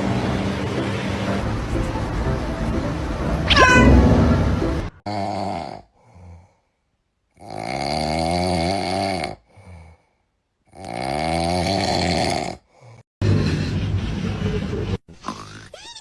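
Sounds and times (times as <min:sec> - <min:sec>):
animal snoring loudly: 0:05.1 - 0:06.5, 0:07.4 - 0:10.0, 0:10.7 - 0:13.8
faint breath: 0:09.4 - 0:10.3.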